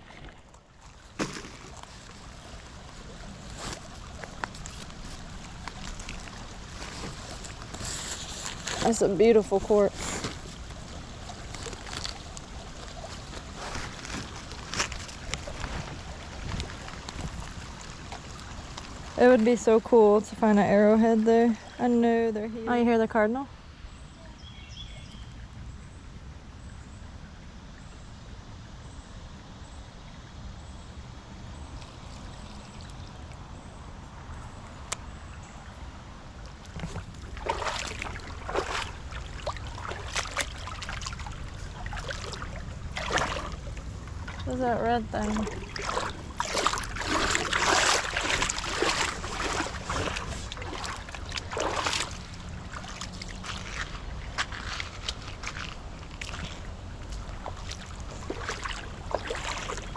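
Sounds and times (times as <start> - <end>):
creek water rushing: 0.0 - 22.9, 31.6 - 59.9
wind rumble on microphone: 2.1 - 22.8.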